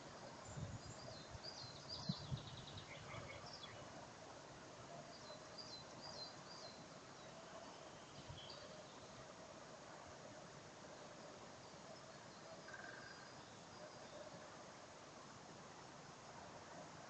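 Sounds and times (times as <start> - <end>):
songbirds chirping: 0.0 - 16.9.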